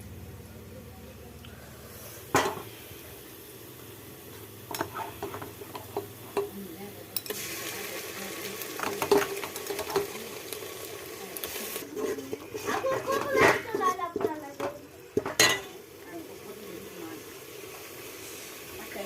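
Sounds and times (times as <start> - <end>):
food sizzling: 0.0 - 19.0
spoon scraping a pan: 4.3 - 7.4, 8.8 - 10.2, 11.4 - 15.8.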